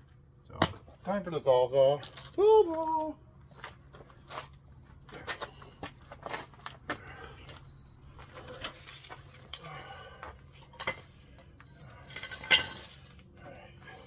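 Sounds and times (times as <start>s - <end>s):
tools and wood clattering: 3.4s - 14.0s.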